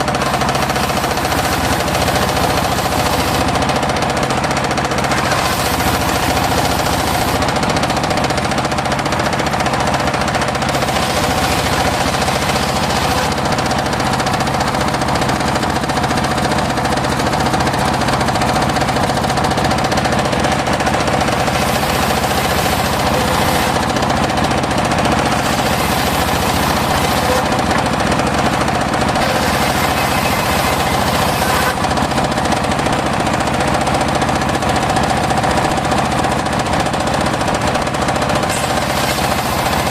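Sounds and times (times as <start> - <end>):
circular saw cutting wood: 0.0 - 33.0, 38.2 - 39.9
fast even machine knocking: 0.0 - 39.9.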